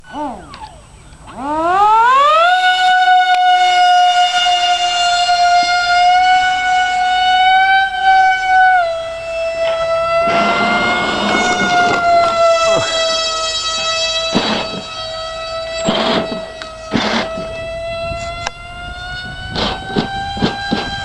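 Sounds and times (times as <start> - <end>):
electric motor whining: 4.5 - 21.0
rushing noise: 10.1 - 15.0.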